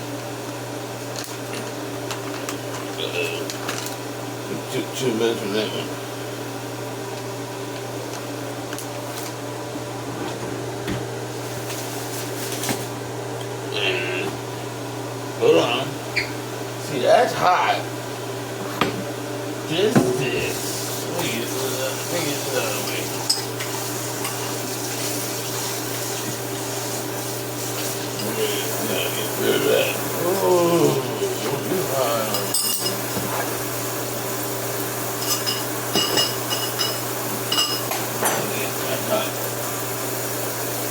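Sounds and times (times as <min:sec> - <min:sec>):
kitchen appliance humming: 0:00.0 - 0:40.9
food frying in hot oil: 0:20.5 - 0:40.9.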